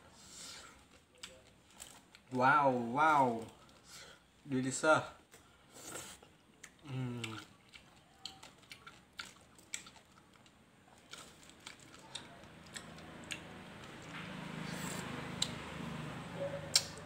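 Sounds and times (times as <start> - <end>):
person chewing: 5.3 - 15.6, 16.7 - 17.0
person humming mm: 6.8 - 7.4.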